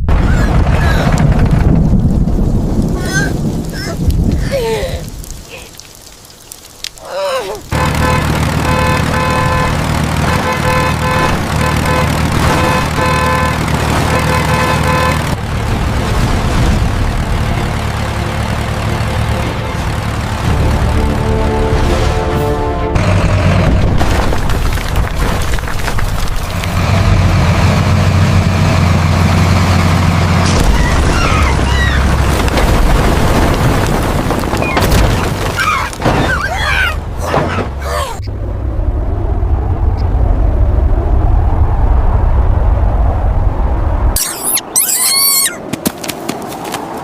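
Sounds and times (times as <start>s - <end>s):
tractor engine rumble: 0.0s - 21.9s, 23.0s - 41.0s.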